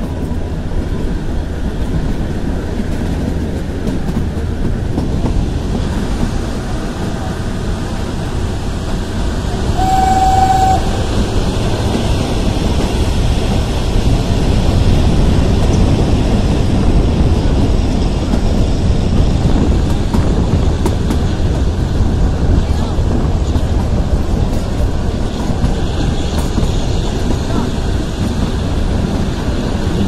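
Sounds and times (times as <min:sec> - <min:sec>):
train wheels rumbling on rail: 0:00.0 - 0:30.0
train horn toot: 0:09.6 - 0:11.2.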